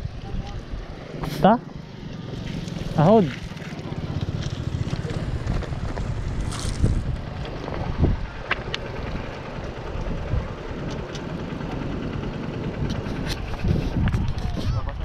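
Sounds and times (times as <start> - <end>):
dirt bike engine idling: 0.5 - 14.4
wind on microphone: 5.2 - 11.1, 12.7 - 15.0.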